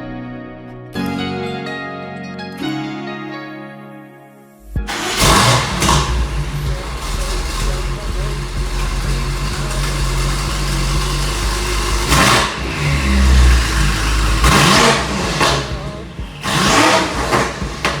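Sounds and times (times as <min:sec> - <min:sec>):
car exhaust idling and revving: 0:04.9 - 0:18.0.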